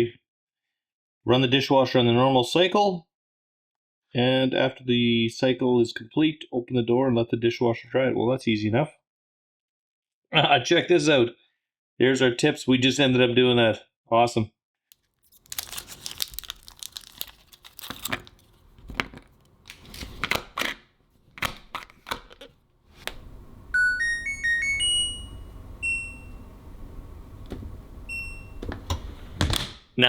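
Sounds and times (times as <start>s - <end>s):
paper crinkling and rustling: 14.9s - 23.1s
rising electronic chime melody: 23.8s - 26.4s
steady low hum: 24.4s - 29.5s.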